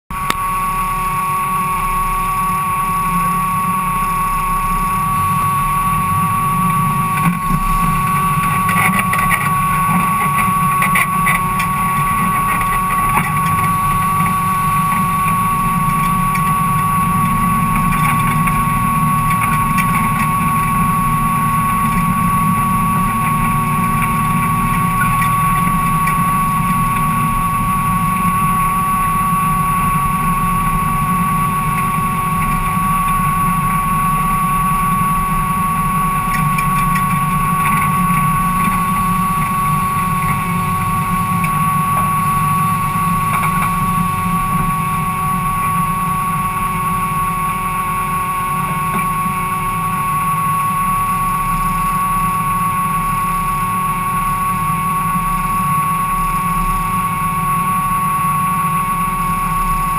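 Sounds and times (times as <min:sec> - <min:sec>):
car engine running at low revs: 0:00.1 - 0:59.9
high-pitched whine: 0:00.1 - 0:59.9.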